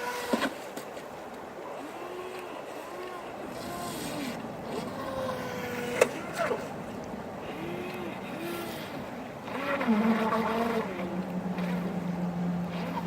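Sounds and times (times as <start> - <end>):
water noise: 0.0 - 13.0
electric motor whining: 7.4 - 13.0.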